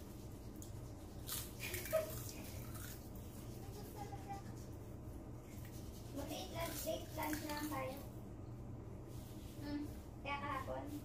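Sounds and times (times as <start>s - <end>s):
faint low hum: 0.0s - 11.0s
person chewing crispy seaweed: 0.4s - 3.4s.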